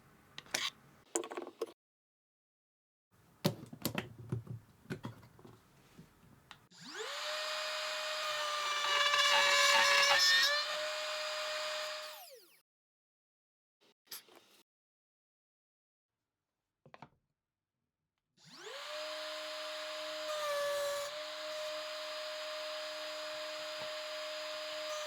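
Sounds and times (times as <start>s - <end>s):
electric router whining: 6.8s - 12.4s, 18.5s - 25.0s.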